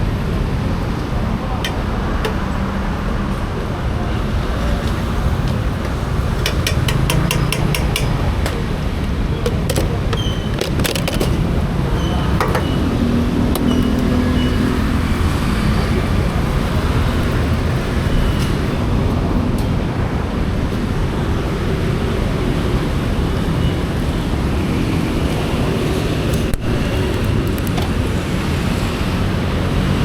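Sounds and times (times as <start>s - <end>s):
passing traffic: 0.0s - 30.0s
vehicle wind and road noise: 0.0s - 30.0s.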